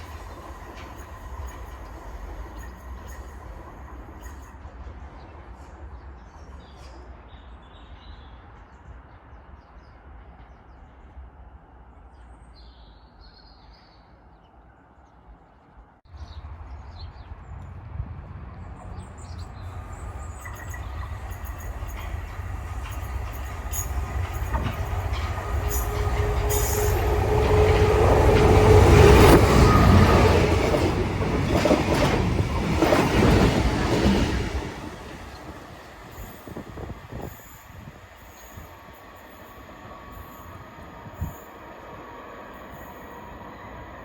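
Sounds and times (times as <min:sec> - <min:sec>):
train wheels rumbling on rails: 0:00.0 - 0:07.2, 0:16.1 - 0:44.0.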